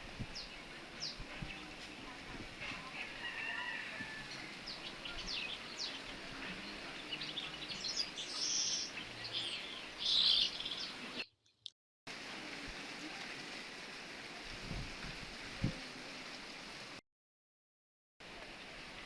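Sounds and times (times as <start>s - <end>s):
wind through trees: 0.0s - 11.3s, 12.1s - 17.0s, 18.2s - 19.0s
small birds chirping: 0.2s - 11.7s.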